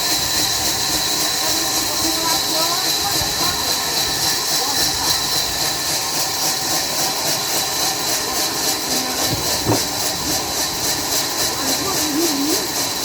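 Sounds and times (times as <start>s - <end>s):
sawmill machinery pulsing hiss: 0.0s - 13.0s
short knock: 9.3s - 10.0s.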